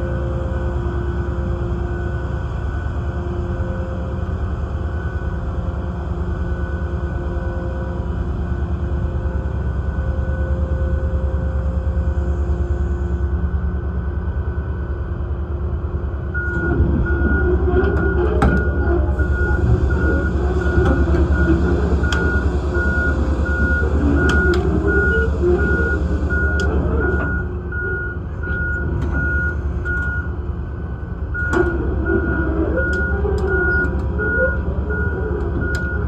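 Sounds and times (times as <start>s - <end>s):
excavator engine drone: 0.0s - 36.0s
travel alarm beeping: 16.3s - 36.0s.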